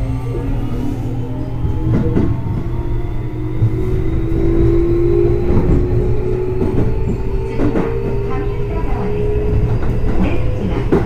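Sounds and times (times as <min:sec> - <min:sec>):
train motor whine rising: 0:00.0 - 0:10.3
steady train rumble: 0:00.0 - 0:11.0.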